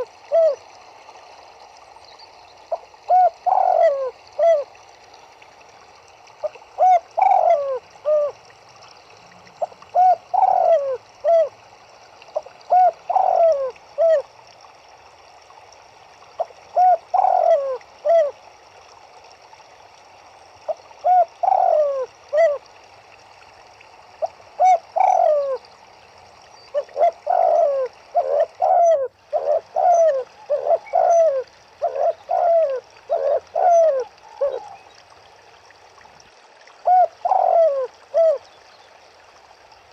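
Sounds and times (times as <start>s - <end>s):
faint steady hiss: 0.0s - 39.9s
turtledoves cooing: 3.1s - 4.6s, 6.8s - 8.4s, 9.4s - 11.5s, 12.4s - 14.2s, 16.7s - 18.3s, 21.0s - 22.6s, 24.6s - 25.6s, 26.7s - 34.8s, 36.8s - 38.4s.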